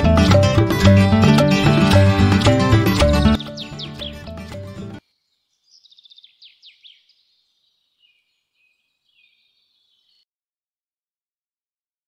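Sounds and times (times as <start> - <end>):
faint bird chirping: 3.2 - 4.3, 5.0 - 10.3.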